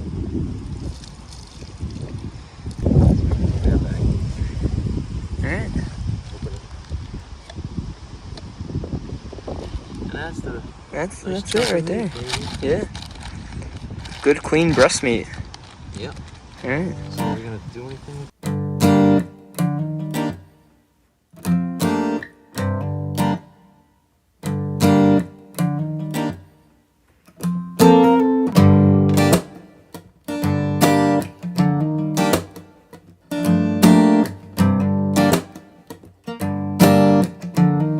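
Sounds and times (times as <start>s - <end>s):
acoustic guitar strumming chords: 16.7s - 17.4s, 18.4s - 20.8s, 21.4s - 37.9s.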